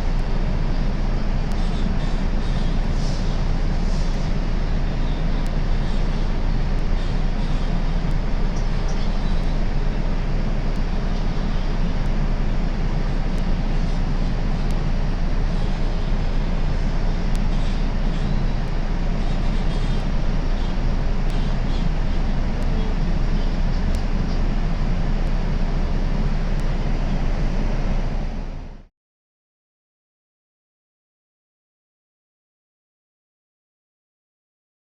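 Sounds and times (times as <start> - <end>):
train rumbling on rails: 0.0 - 28.9.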